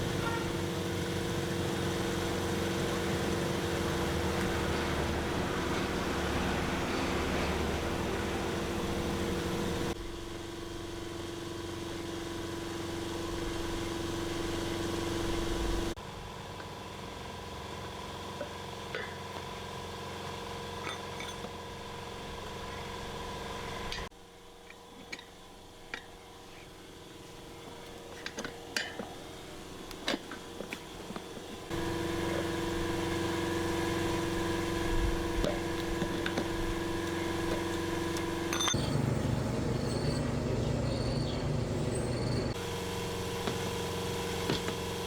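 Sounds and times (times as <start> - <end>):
machine hum: 0.0 - 16.0, 29.4 - 45.0
light metal clinks and taps: 38.2 - 38.9.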